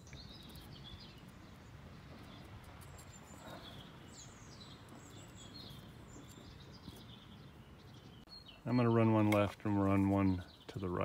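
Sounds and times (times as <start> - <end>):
handling ticks: 0.0 - 7.6
outdoor background hum: 0.0 - 11.0
songbird chirping: 0.0 - 11.0.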